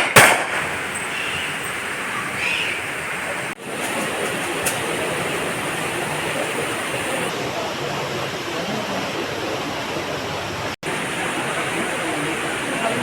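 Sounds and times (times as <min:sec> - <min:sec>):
steady rushing noise: 0:00.4 - 0:08.4, 0:10.6 - 0:13.0.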